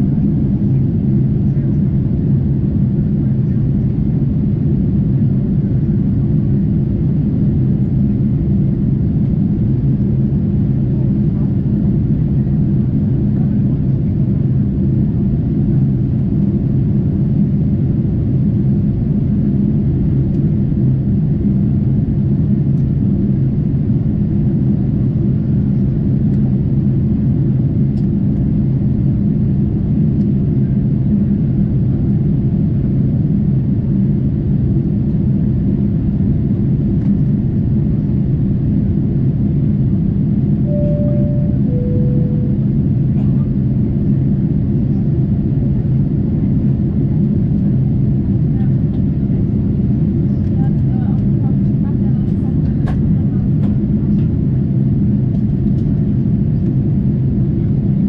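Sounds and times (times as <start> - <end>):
aircraft cabin engine rumble: 0.0 - 58.0.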